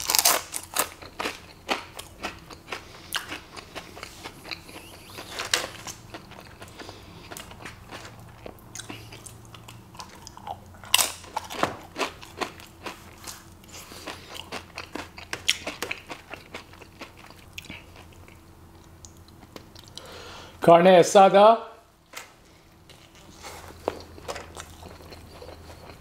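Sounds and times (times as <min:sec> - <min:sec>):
crunching tortilla chip: 0:00.0 - 0:18.1
wet mouth sounds: 0:02.5 - 0:07.5.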